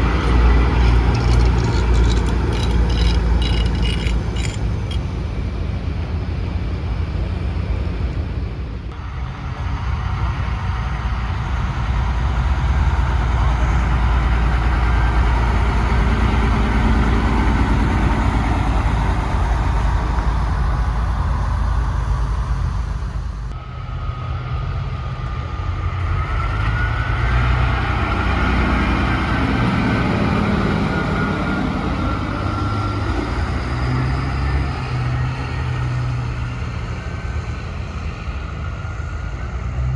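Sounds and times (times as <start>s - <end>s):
diesel trucks passing: 0.0s - 39.9s
road noise: 0.0s - 39.9s
high whine: 13.4s - 39.7s.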